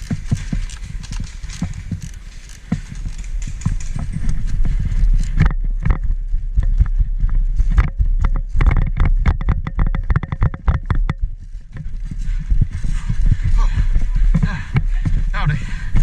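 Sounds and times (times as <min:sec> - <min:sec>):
sharp clicks: 0:00.0 - 0:06.0
equipment rattling: 0:00.0 - 0:15.9
footsteps: 0:00.0 - 0:16.0.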